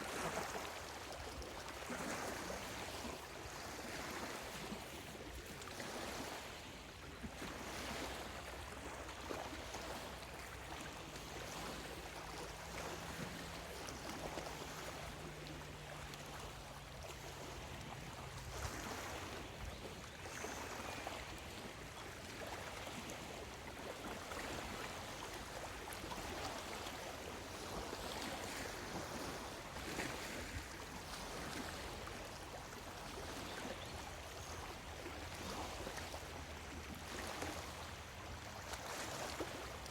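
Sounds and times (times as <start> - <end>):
lake waves lapping on shore: 0.0 - 39.9.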